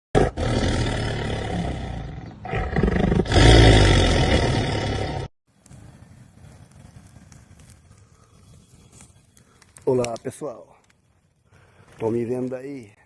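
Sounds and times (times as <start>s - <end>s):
loud animal roar: 0.2s - 5.3s.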